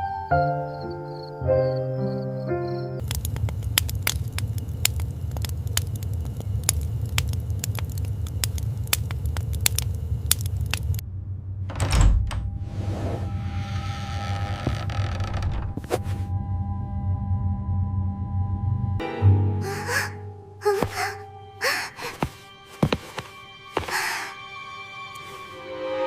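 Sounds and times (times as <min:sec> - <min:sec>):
sharp clicks and crackles: 0:03.0 - 0:11.0
low rumble: 0:03.0 - 0:19.0.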